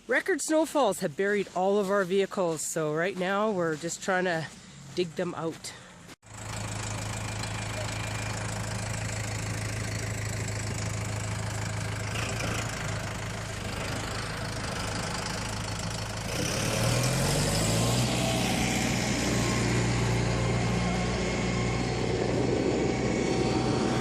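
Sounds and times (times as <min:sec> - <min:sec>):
vehicle engine idling: 0:05.7 - 0:24.0.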